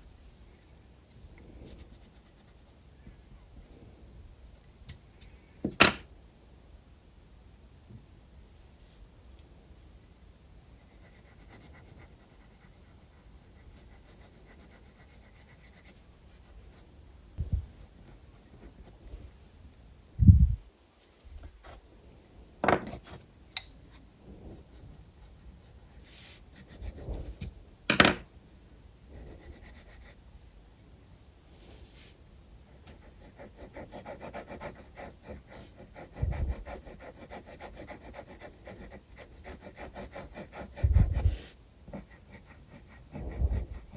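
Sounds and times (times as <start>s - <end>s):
pencil scratching on paper: 10.7s - 16.9s, 23.9s - 28.2s, 29.2s - 30.2s, 32.7s - 43.9s.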